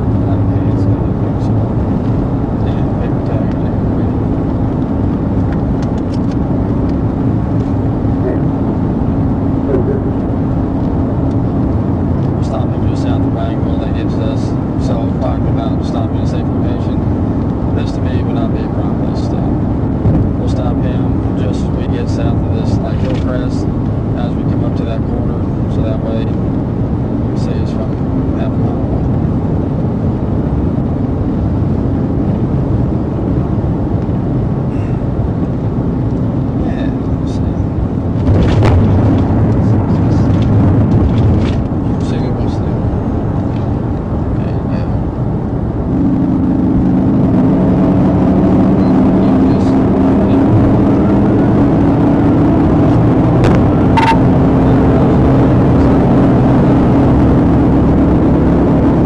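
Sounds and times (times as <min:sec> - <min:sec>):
car driving road noise: 0:00.0 - 0:59.0
brief beep: 0:54.0 - 0:54.3.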